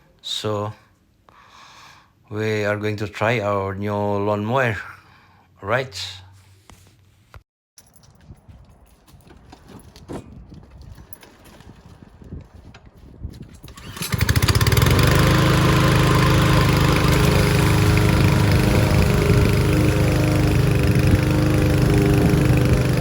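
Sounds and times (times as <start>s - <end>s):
lawn mower engine running: 13.7s - 23.0s.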